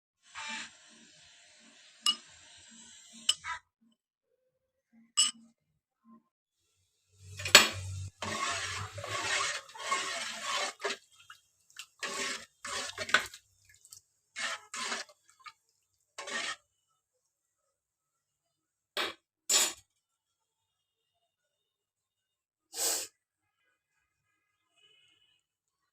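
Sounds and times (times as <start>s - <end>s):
pots and pans clattering: 7.3s - 11.0s, 12.0s - 13.4s.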